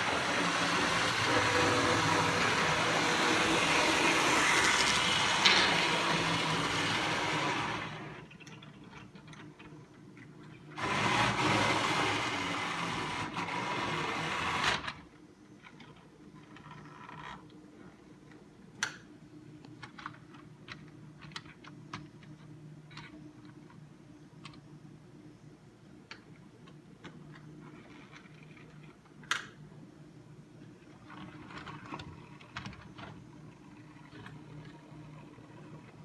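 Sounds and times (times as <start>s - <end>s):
model train running on track: 0.0s - 8.1s.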